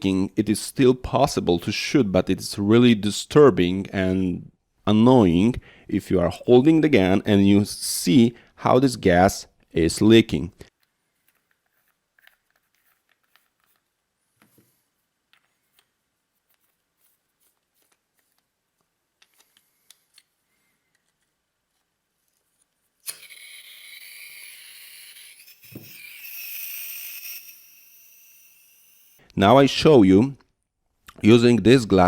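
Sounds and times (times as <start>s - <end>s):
gas hissing from valve: 23.0s - 29.2s.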